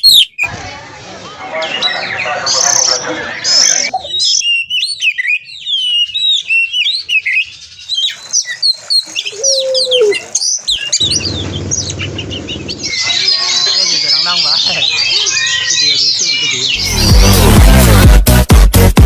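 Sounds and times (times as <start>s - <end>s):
bird singing whistles and trills: 3.8s - 16.8s.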